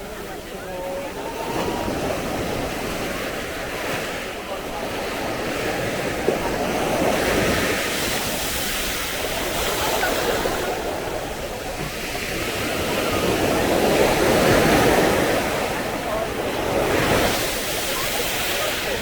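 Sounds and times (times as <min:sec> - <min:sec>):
sea waves breaking on beach: 0:00.0 - 0:19.0.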